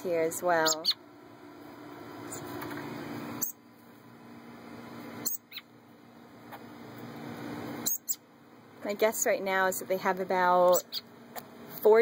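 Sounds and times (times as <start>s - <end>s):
young songbirds chirping: 0.0s - 1.1s, 3.4s - 3.6s, 5.2s - 5.8s, 7.8s - 8.3s, 10.5s - 11.1s.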